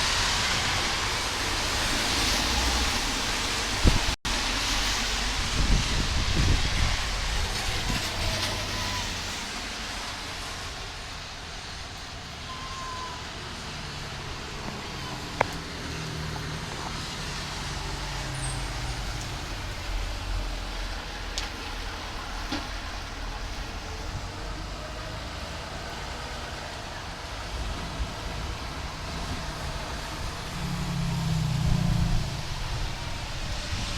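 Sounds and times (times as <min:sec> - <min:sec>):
rainstorm rushing: 0:00.0 - 0:33.9.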